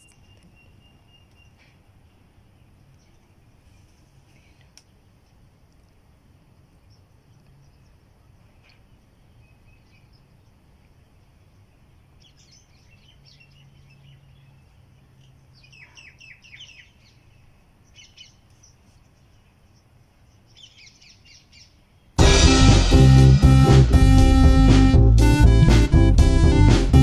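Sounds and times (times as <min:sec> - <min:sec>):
small birds chirping: 0:00.0 - 0:22.2.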